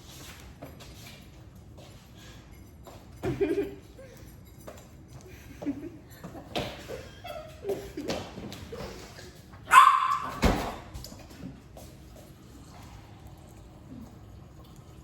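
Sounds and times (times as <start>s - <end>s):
dog barking: 9.7s - 10.6s.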